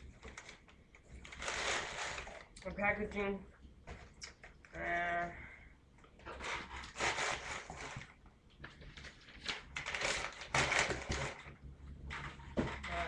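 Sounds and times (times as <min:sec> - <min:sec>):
packaging rustling and crinkling: 0:00.0 - 0:02.6, 0:06.2 - 0:13.0.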